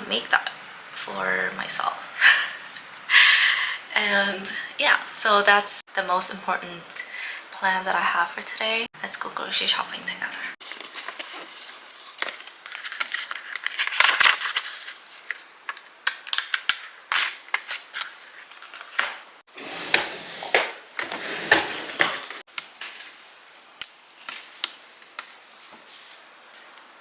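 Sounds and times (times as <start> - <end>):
rustling and crinkling: 10.6 - 15.5.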